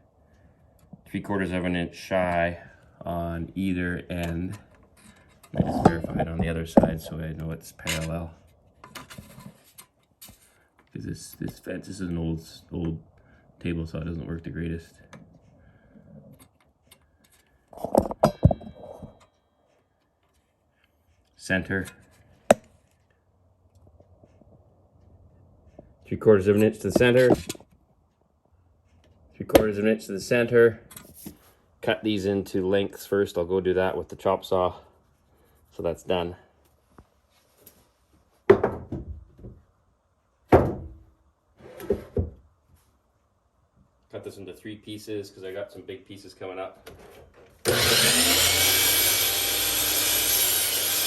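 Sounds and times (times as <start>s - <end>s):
metal clinks and knocks: 17.3s - 19.4s
wooden lumber thunks: 38.5s - 39.6s, 40.5s - 41.0s.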